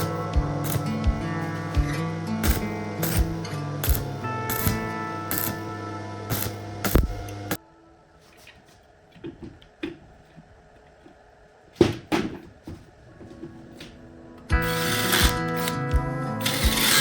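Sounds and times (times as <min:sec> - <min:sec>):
background music: 0:00.0 - 0:08.3, 0:13.5 - 0:17.0.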